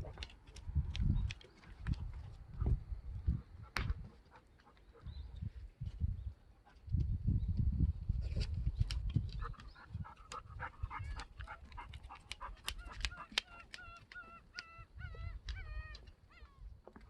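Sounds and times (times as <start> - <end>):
gulls yelping calls: 9.4 - 16.7
sharp clicks: 11.2 - 14.8.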